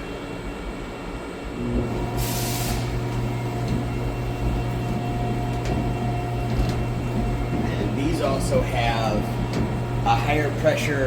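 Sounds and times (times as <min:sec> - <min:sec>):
high machine whine: 0:01.4 - 0:11.0
machine axis drives humming: 0:01.6 - 0:11.0
short air hiss: 0:02.1 - 0:03.0.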